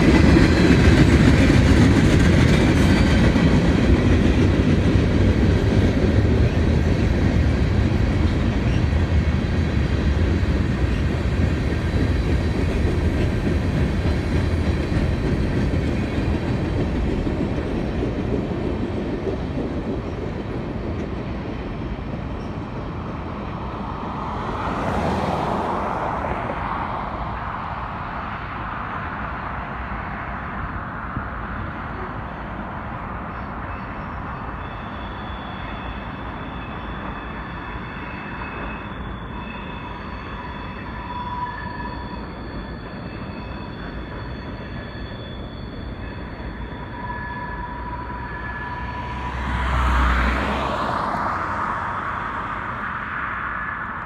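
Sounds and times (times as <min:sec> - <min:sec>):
wheels clickety-clack: 0:00.0 - 0:23.7
freight train rolling past: 0:00.0 - 0:54.0.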